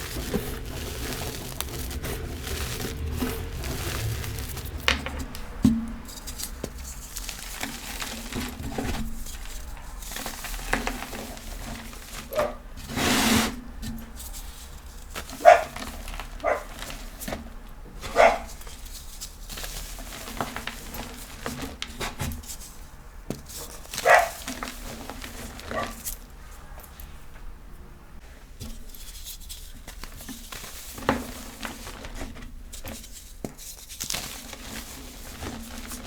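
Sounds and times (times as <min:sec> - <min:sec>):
chalk blocks crunching: 0:00.0 - 0:26.2
dog barking: 0:12.3 - 0:12.6, 0:15.4 - 0:15.8, 0:16.4 - 0:16.8, 0:18.1 - 0:18.6, 0:24.0 - 0:24.5.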